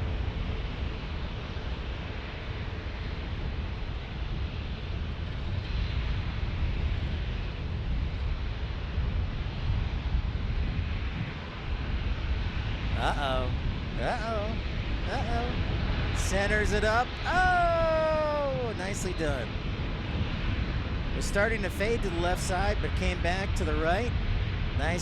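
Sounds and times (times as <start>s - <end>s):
wind buffeting microphone: 0.0s - 25.0s
airliner jet noise: 10.6s - 25.0s.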